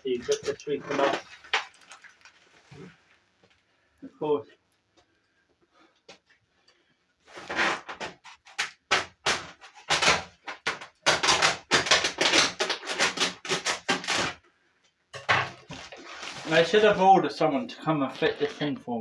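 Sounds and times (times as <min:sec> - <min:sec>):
rustling and knocking handling noises: 0:15.2 - 0:17.1.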